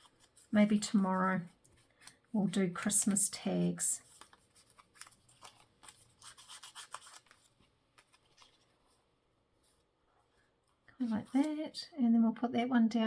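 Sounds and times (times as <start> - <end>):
paper rustling and rubbing: 0.0 - 9.8
soft scratches: 3.0 - 11.8.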